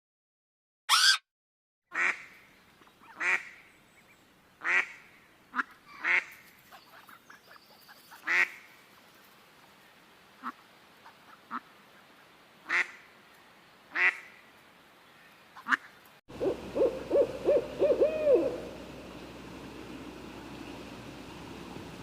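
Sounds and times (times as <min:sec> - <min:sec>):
bird calls: 0:02.7 - 0:09.3, 0:15.2 - 0:19.3
low arched bird notes: 0:16.3 - 0:22.0.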